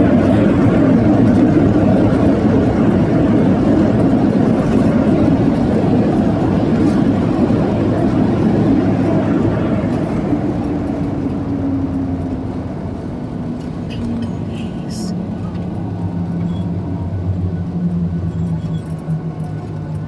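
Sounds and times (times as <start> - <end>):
engine rumbling: 0.0 - 20.0
faint voices: 13.8 - 15.3.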